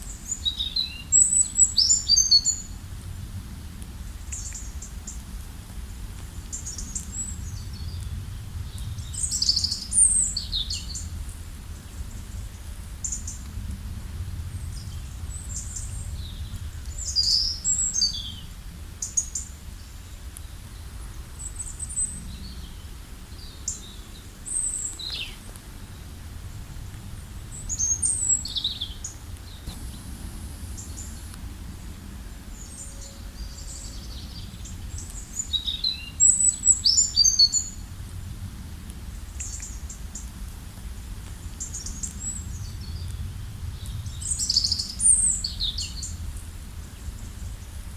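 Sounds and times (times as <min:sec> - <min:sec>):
songbirds chirping: 0:06.0 - 0:13.6, 0:14.2 - 0:38.3.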